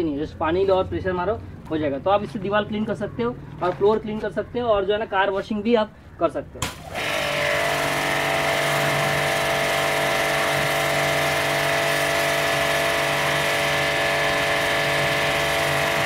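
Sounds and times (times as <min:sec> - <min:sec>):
high-pressure water jet hissing: 0:06.6 - 0:16.0
pump motor humming: 0:06.6 - 0:16.0.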